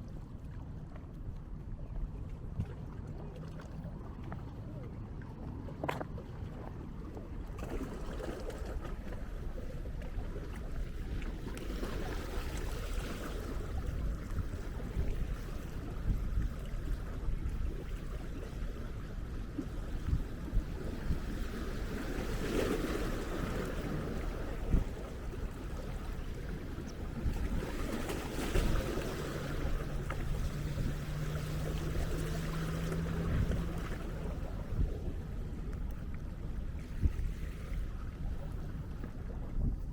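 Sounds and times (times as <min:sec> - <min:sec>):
wind buffeting microphone: 0:08.8 - 0:39.9
small waves washing on sand: 0:18.6 - 0:39.3.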